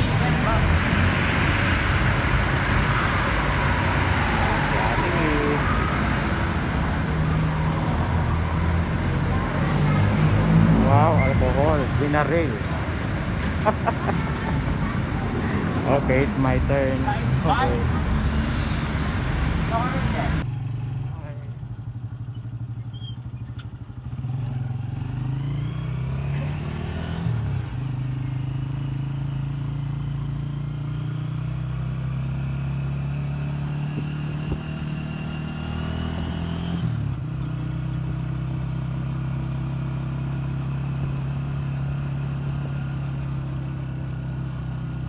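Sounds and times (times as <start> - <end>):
motorcycle engine accelerating: 20.4 - 45.0.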